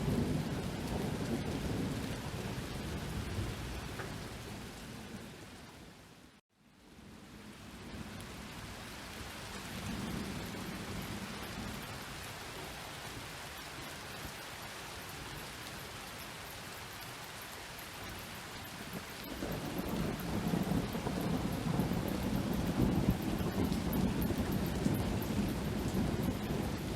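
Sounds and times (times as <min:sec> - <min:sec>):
low rumble of thunder: 0:00.0 - 0:05.6, 0:07.0 - 0:13.0, 0:18.6 - 0:26.9
steady rain: 0:00.0 - 0:26.9.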